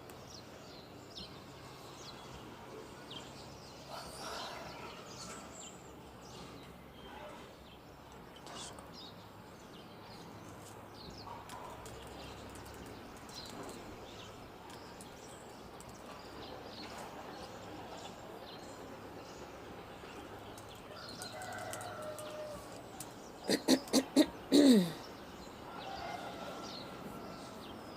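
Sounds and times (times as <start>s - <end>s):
birds chirping: 0.1s - 27.9s
held pitched bird call: 23.4s - 25.2s.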